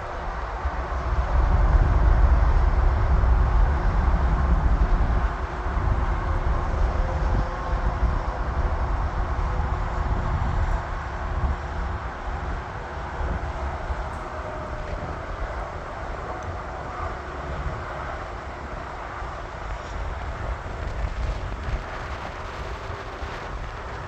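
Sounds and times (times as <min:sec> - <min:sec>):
jet engines rumbling: 0:01.7 - 0:24.0.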